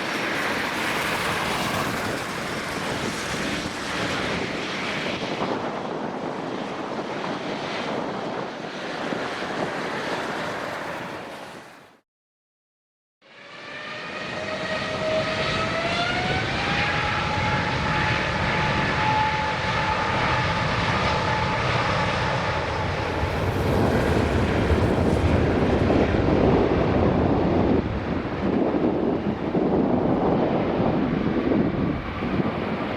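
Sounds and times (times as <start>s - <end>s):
jet engine whine: 0.0s - 12.0s, 13.2s - 32.9s
loud jet roar: 0.0s - 12.0s, 13.3s - 32.9s
deep engine rumble: 19.9s - 32.9s.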